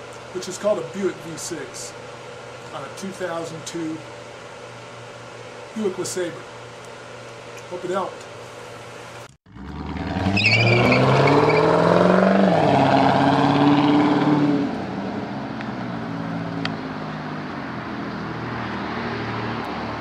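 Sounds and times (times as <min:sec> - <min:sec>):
car engine accelerating: 0:09.5 - 0:20.0.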